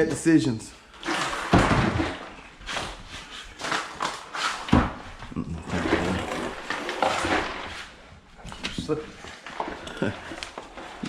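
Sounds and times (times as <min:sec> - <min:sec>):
ice cubes rattling into cooler: 0:05.8 - 0:07.6.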